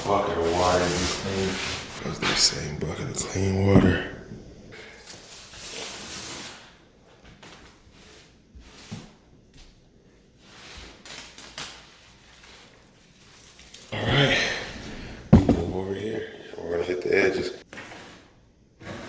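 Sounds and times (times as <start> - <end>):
sponge rubbing on gritty tile: 0.0 - 2.3, 5.2 - 6.8, 7.6 - 9.2, 10.4 - 13.8, 17.6 - 19.0.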